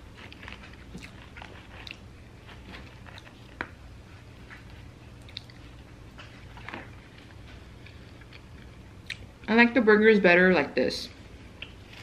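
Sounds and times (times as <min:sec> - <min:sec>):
person chewing: 0:00.0 - 0:03.8, 0:04.4 - 0:09.3.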